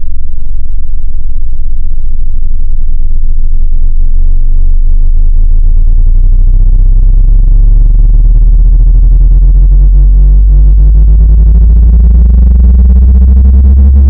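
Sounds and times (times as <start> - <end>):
low buzzy synthesized tone: 0.0 - 14.0.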